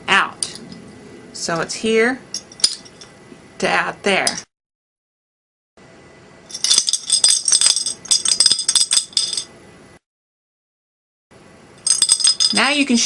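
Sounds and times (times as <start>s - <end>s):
bottle cap rattling in glass bottle: 6.5s - 9.5s.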